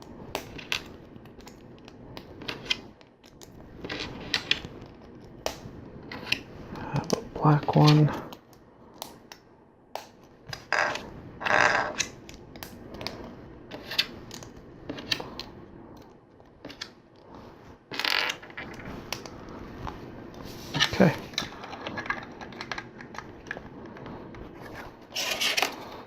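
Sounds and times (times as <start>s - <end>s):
plastic parts rustling: 0.4s - 5.4s, 17.9s - 26.0s.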